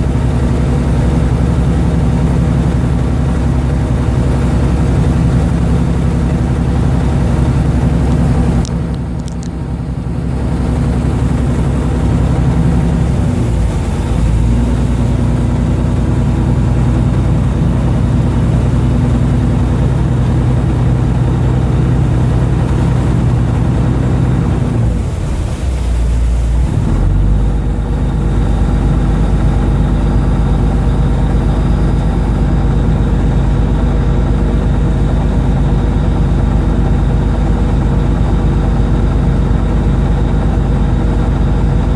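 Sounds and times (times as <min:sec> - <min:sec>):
boat engine running: 0:00.0 - 0:41.9
clicks: 0:08.6 - 0:09.6.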